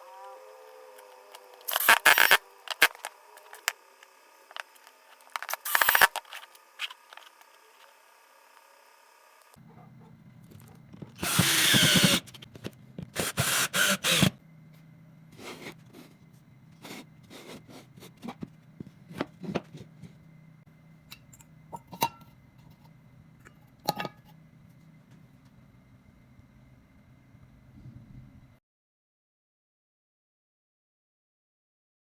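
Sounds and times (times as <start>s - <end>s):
power drill bursts: 0.1s - 4.8s, 5.4s - 7.0s, 11.2s - 12.3s, 13.2s - 14.4s.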